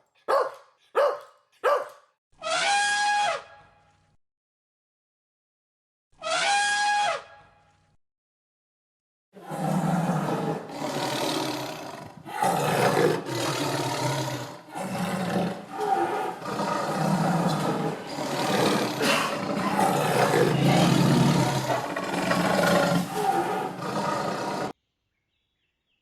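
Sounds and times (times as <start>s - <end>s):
large animal rough calls: 9.4s - 24.8s.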